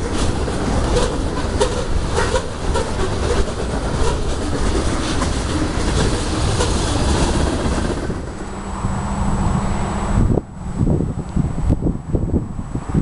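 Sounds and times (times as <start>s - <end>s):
wheels clicking on rails: 0.0s - 8.5s
freight train rumbling past: 0.0s - 13.0s.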